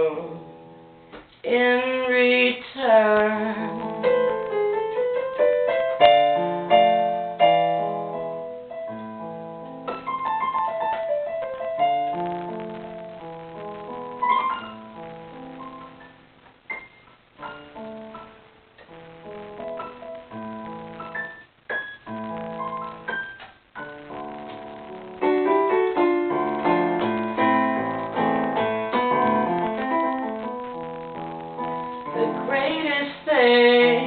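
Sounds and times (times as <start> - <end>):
solo jazz piano: 1.8 - 34.0.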